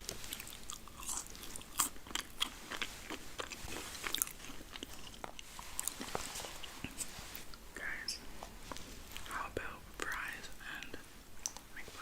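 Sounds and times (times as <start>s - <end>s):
person chewing crunchy food: 0.0s - 7.6s.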